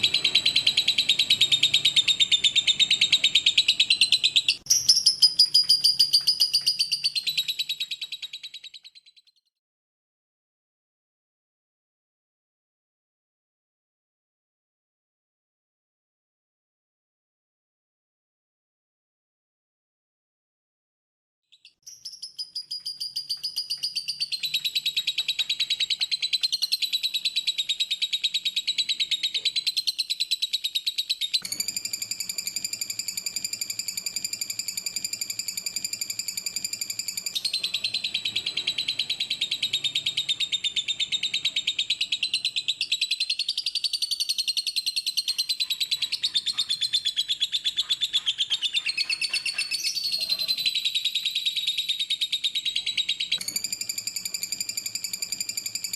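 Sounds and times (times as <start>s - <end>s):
lovebird chattering song: 0.0s - 9.3s, 21.6s - 55.9s.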